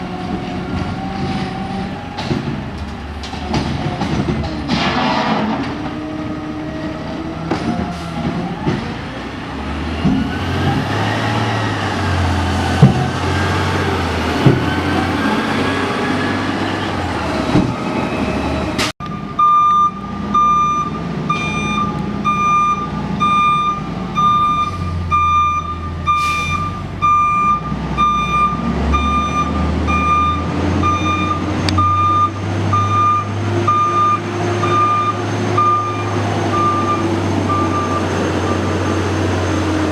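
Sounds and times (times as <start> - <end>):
diesel truck engine running: 5.6 - 39.9
reversing alarm beeping: 17.9 - 38.7.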